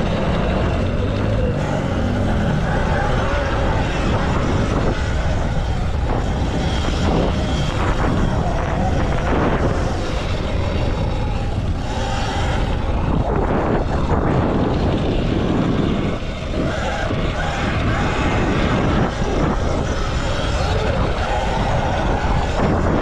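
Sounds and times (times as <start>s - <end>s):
wind rumble on microphone: 0.0s - 23.0s.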